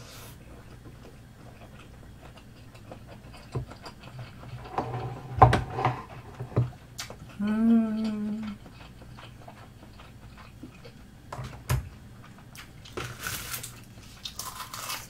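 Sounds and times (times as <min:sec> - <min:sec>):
person chewing: 0:00.5 - 0:04.7, 0:06.8 - 0:11.1, 0:12.2 - 0:15.0
person humming mmm: 0:07.3 - 0:08.6.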